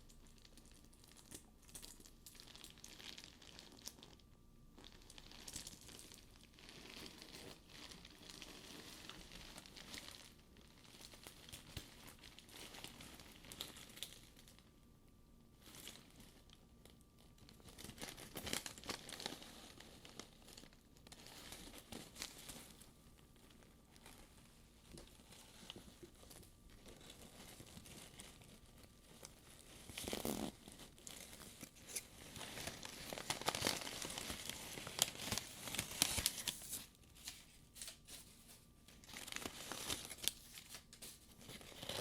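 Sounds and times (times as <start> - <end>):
paper crinkling: 15.8 - 42.0.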